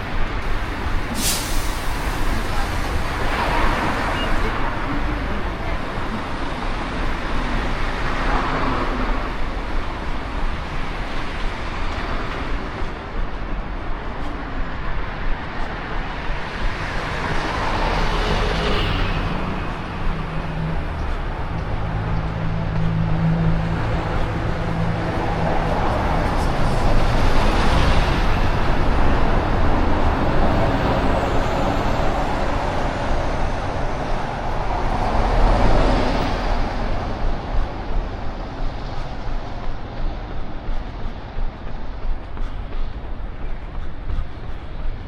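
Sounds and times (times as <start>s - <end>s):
vehicles passing close by: 0.0s - 45.0s.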